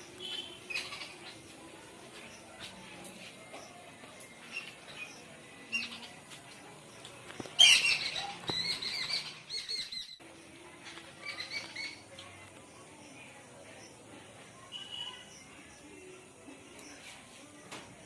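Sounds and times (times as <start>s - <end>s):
birds chirping and squawking: 0.2s - 1.5s, 3.5s - 6.2s, 7.3s - 10.2s, 11.0s - 12.1s.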